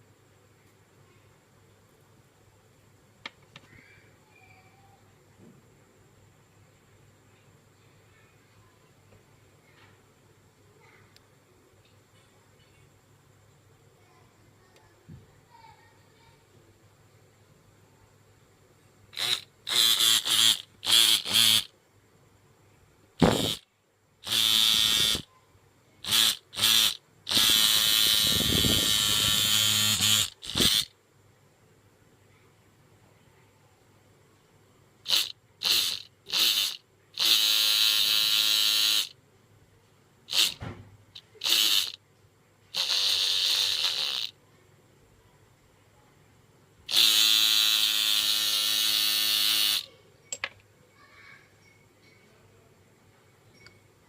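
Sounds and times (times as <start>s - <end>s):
model motorcycle engine buzzing: 19.2s - 21.7s, 23.2s - 23.6s, 24.2s - 25.3s, 26.0s - 30.9s, 35.1s - 39.1s, 40.3s - 42.0s, 42.7s - 44.4s, 46.9s - 49.9s.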